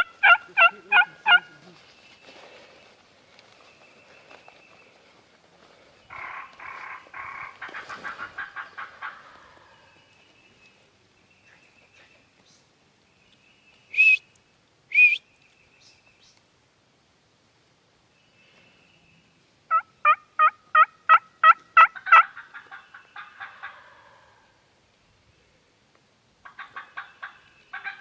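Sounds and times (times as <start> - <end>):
turkey calls: 0.0 - 1.8, 6.1 - 10.0, 19.7 - 24.5, 26.4 - 28.0
faint bird song: 0.0 - 17.1, 18.0 - 28.0.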